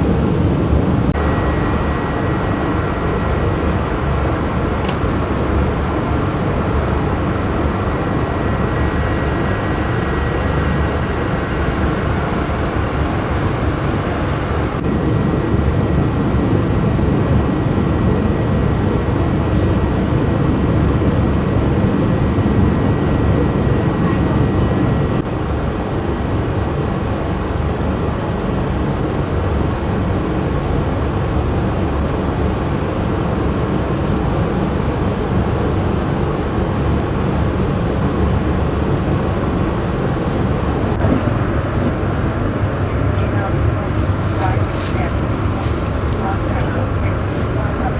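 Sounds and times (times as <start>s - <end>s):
airliner cabin noise: 0.0s - 25.3s, 40.3s - 47.9s.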